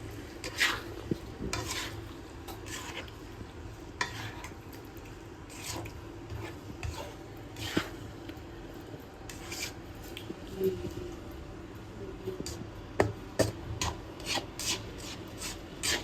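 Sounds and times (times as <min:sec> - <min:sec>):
utensil scraping a pot: 0:00.4 - 0:03.2, 0:04.0 - 0:04.6, 0:05.5 - 0:08.1, 0:09.3 - 0:09.8, 0:13.8 - 0:16.0.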